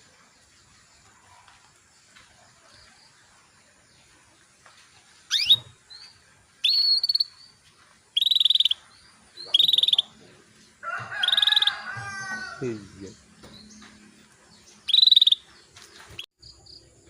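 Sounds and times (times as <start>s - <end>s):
canary calling: 5.3s - 5.8s, 6.6s - 7.4s, 8.1s - 10.2s, 11.1s - 12.5s, 14.8s - 15.5s.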